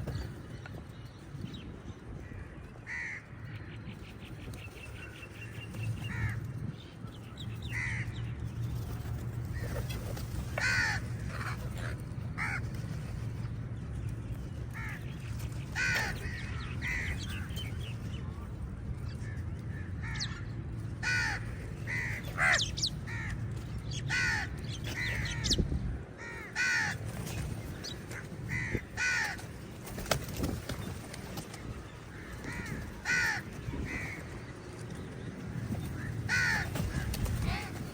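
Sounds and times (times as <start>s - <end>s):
crows cawing: 2.2s - 3.8s, 6.0s - 6.4s, 7.7s - 8.2s, 10.6s - 12.7s, 14.8s - 15.1s, 15.7s - 17.5s, 19.8s - 25.6s, 26.2s - 27.1s, 27.8s - 29.5s, 32.1s - 34.5s, 35.9s - 37.9s.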